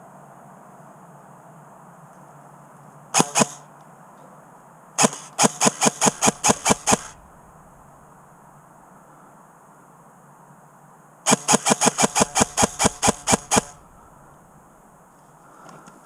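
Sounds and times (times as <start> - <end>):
airsoft gun shots: 3.2 - 3.6, 5.0 - 8.2, 11.3 - 14.9.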